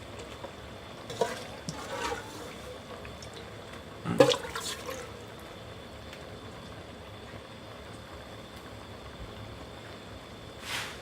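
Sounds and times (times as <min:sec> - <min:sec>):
liquid sloshing in a pot: 0:01.0 - 0:05.3.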